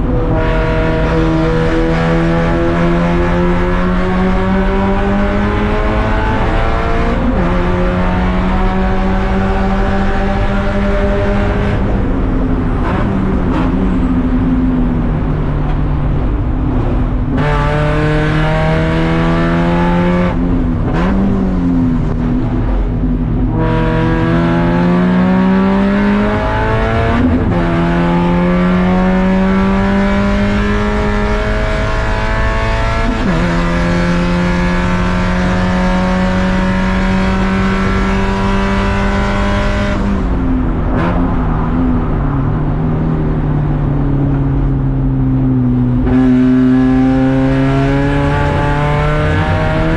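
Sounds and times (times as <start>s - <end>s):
race car engine accelerating: 0.0s - 49.9s.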